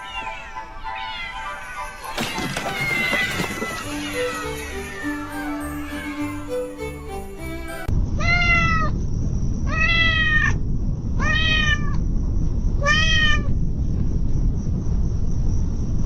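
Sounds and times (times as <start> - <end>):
steady low rumble: 7.9 - 16.0
kitten meowing: 11.2 - 12.0, 12.8 - 13.5.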